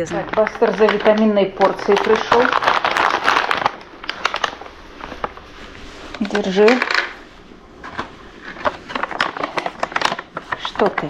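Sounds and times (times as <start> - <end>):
person speaking: 0.0 - 2.7, 6.1 - 7.2, 9.4 - 11.0.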